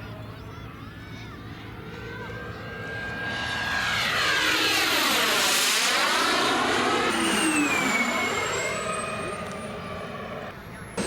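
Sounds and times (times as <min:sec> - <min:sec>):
model jet turbine passing: 0:02.0 - 0:11.0
high whine dropping in pitch: 0:03.0 - 0:11.0.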